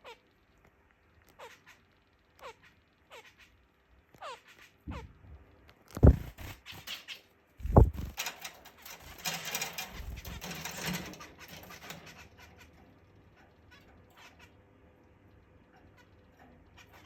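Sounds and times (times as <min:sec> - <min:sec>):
birds fluttering and scuffling: 0:05.8 - 0:14.5
thumps: 0:06.0 - 0:06.6, 0:07.6 - 0:11.1.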